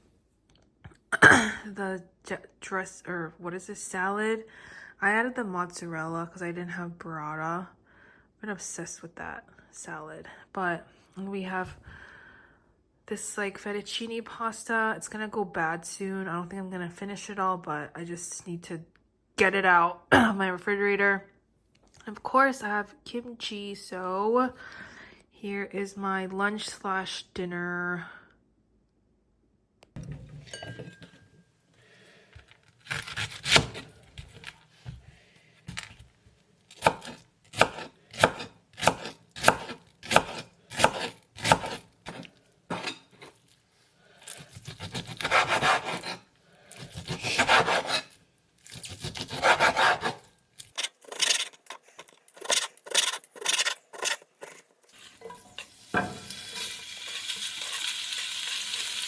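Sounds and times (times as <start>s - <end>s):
food sizzling in a pan: 54.9s - 59.0s.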